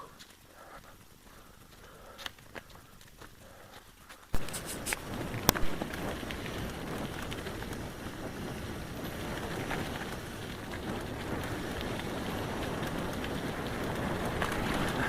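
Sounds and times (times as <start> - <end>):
wind noise on microphone: 4.4 - 15.0.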